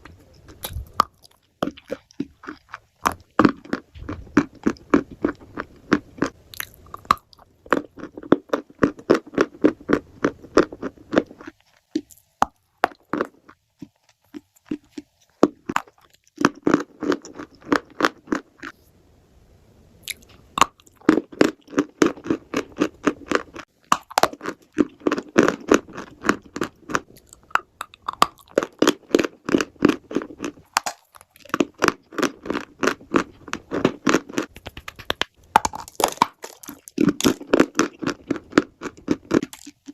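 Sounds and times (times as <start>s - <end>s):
person chewing crunchily: 0.0s - 18.8s, 20.0s - 39.9s.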